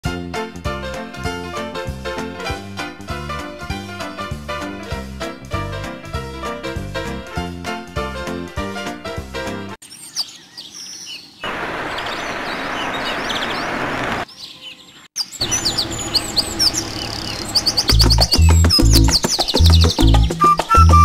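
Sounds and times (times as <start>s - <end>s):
birds chirping: 9.8s - 21.0s.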